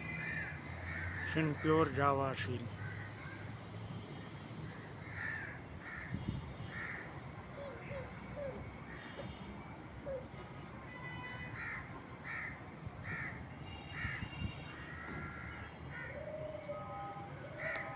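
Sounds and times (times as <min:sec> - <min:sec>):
crows cawing: 0:00.1 - 0:02.0, 0:02.8 - 0:03.4, 0:04.7 - 0:07.1, 0:11.6 - 0:16.4, 0:17.6 - 0:17.9.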